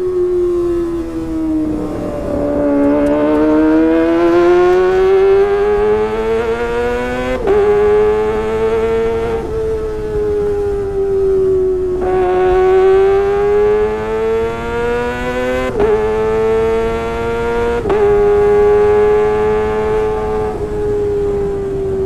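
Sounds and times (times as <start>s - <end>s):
motorcycle engine at high revs: 0.0s - 22.0s.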